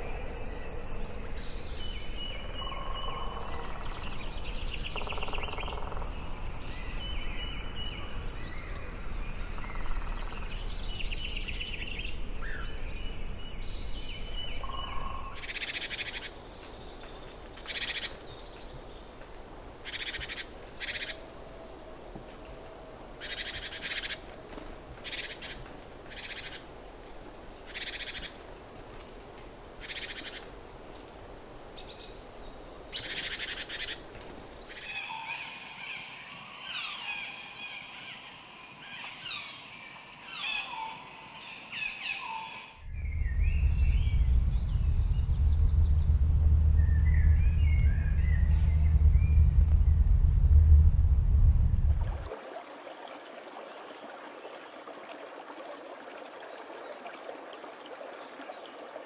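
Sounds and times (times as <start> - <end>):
bird chirps: 40.4 - 50.0
low rumble: 42.8 - 52.3.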